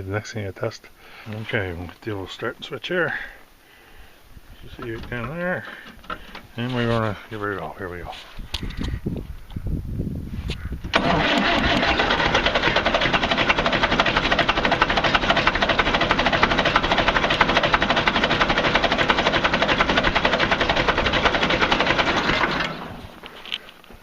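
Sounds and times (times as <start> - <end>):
diesel engine cranking with starter: 4.8 - 6.6, 10.9 - 23.6.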